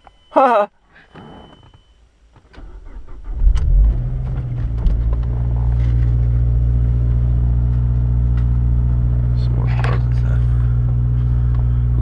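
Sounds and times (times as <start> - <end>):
car engine starting up: 2.4 - 12.0.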